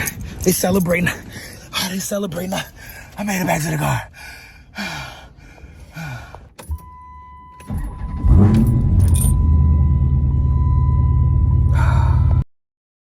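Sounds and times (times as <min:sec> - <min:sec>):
car engine starting and idling: 0:05.6 - 0:12.4
car electronic chime: 0:06.7 - 0:12.4.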